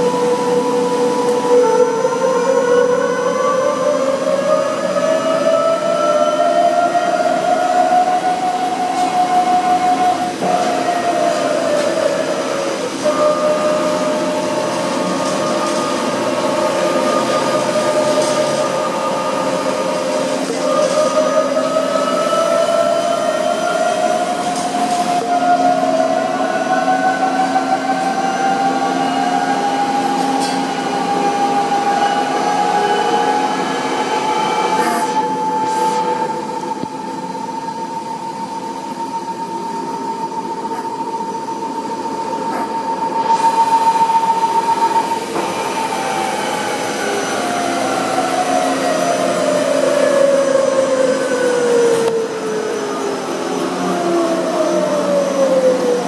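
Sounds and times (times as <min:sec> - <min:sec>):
lathe whining: 0:00.0 - 0:56.0.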